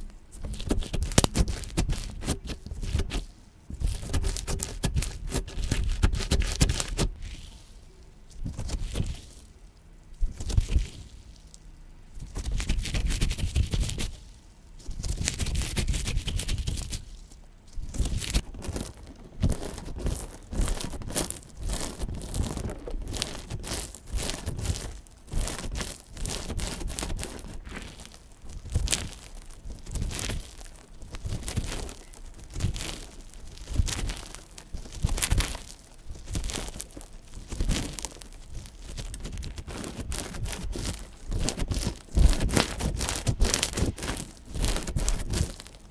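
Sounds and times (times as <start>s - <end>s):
slime crackling and popping: 0.0s - 7.6s, 8.2s - 14.2s, 14.9s - 45.9s.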